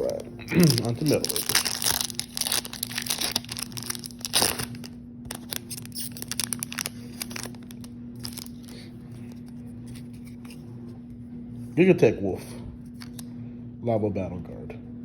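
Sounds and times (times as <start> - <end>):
foil wrapper crinkling and tearing: 0.0 - 10.4
cards rustling and clicking: 0.0 - 10.6, 12.9 - 13.3.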